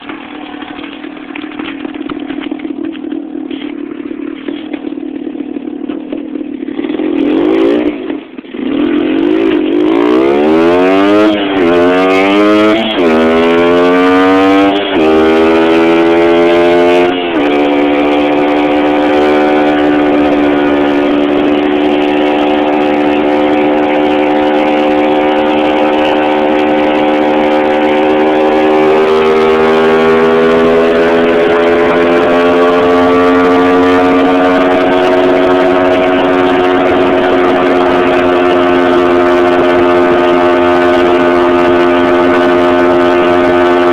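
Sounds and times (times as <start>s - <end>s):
two-stroke motorcycle engine: 0.0s - 43.9s.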